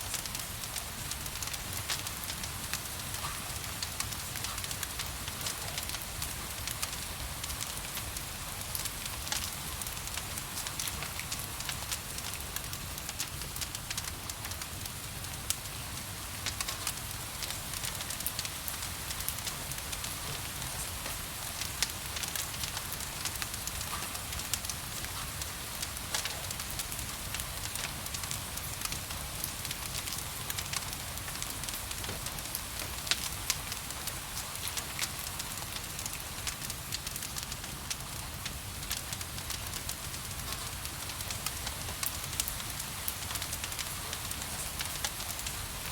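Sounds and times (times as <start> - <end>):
gentle rain hiss: 0.0 - 45.9
wood fire crackling: 0.0 - 45.9.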